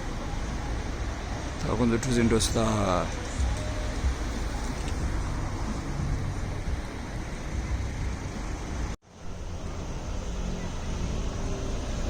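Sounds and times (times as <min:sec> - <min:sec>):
boat engine humming: 0:03.0 - 0:12.0.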